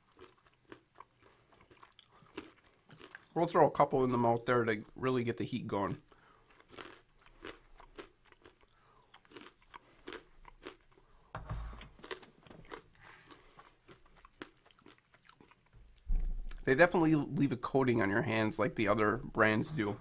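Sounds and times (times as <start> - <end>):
person chewing crunchy nuts: 0.0 - 3.6, 6.0 - 16.7
low thump: 15.8 - 16.6.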